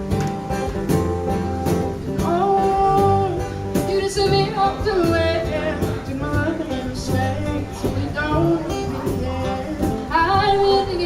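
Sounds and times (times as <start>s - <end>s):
acoustic guitar strumming: 0.0s - 11.0s
cajon beat: 0.0s - 11.0s
person singing: 2.2s - 11.0s.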